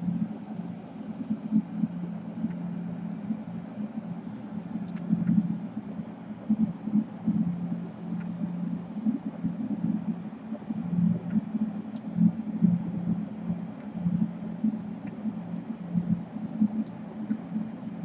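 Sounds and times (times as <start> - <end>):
faint ticks: 4.7 - 5.6, 6.4 - 18.0.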